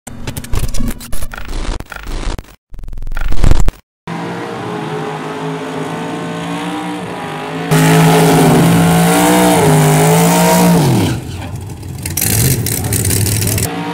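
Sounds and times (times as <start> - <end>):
race car engines idling: 11.2 - 13.7.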